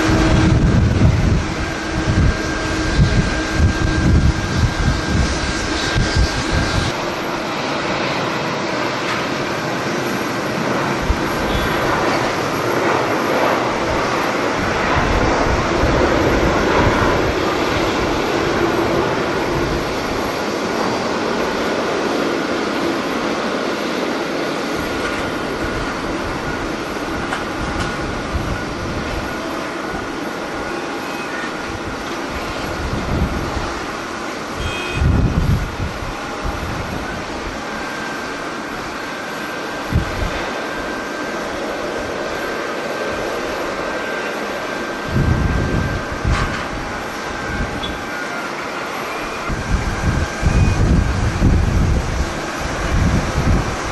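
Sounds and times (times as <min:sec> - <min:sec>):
wind buffeting microphone: 0:00.0 - 0:30.7, 0:31.5 - 0:48.1, 0:49.4 - 0:53.9
jet engines rushing and whining: 0:00.0 - 0:53.9.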